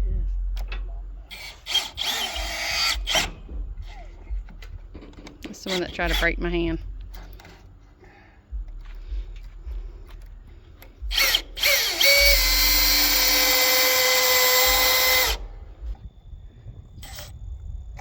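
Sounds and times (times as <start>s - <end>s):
power drill drilling into wood: 1.3s - 3.3s, 11.1s - 15.4s.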